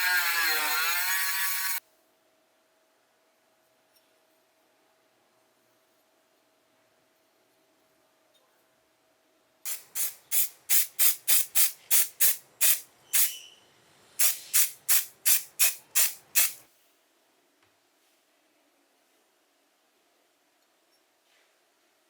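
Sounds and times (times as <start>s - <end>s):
spray bottle squirting: 9.7s - 13.4s, 14.2s - 16.6s.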